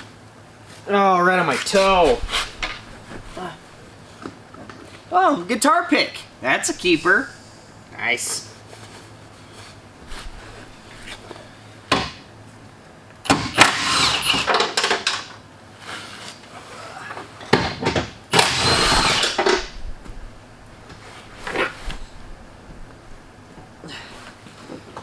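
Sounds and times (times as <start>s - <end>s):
handheld power tool running: 13.3s - 14.9s, 18.4s - 19.7s.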